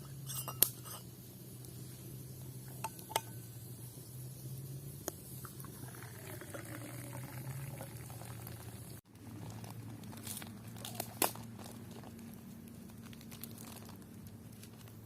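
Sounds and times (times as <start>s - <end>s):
liquid bubbling and pouring: 5.4s - 9.0s.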